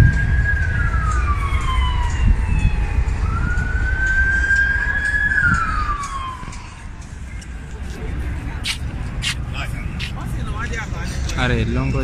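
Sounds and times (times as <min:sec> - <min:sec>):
emergency siren wailing: 0:00.0 - 0:07.2.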